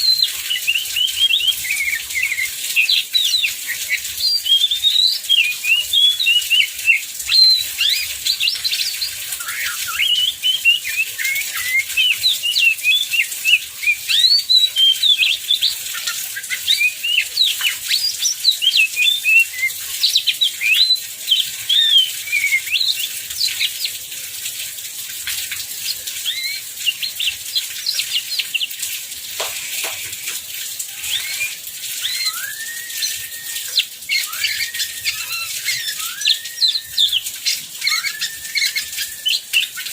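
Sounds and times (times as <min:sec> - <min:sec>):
songbird singing chirps and whistles: 0:00.0 - 0:24.0, 0:25.2 - 0:28.8, 0:29.4 - 0:39.9
heavy rain hiss: 0:22.2 - 0:39.8.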